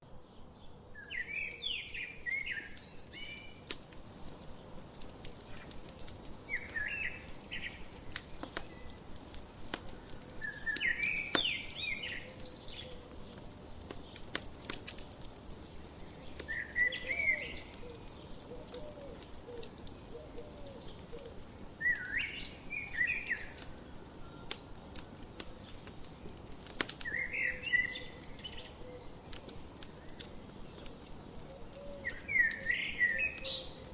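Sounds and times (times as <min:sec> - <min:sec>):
songbird chirping: 0:00.0 - 0:33.9
wood fire crackling: 0:00.8 - 0:33.9.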